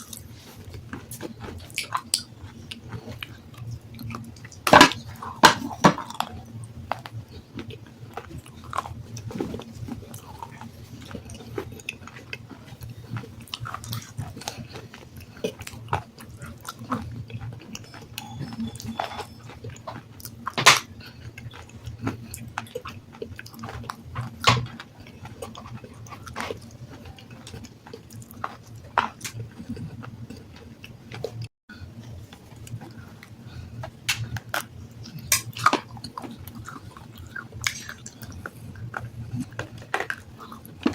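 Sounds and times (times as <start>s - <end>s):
person chewing gritty stone: 0.0s - 40.9s
steady low hum: 0.0s - 40.9s.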